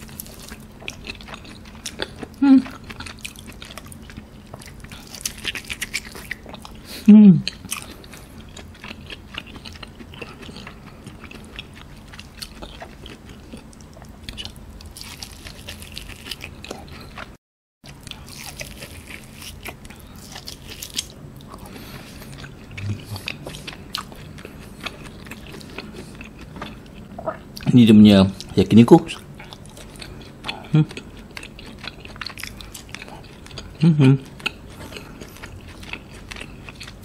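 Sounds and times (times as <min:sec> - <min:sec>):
close chewing with mouth clicks: 0:00.0 - 0:27.7, 0:28.4 - 0:37.0.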